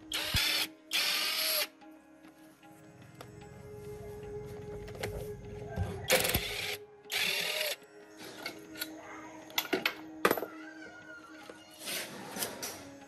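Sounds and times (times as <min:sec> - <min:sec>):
small machine running: 0:06.1 - 0:07.8.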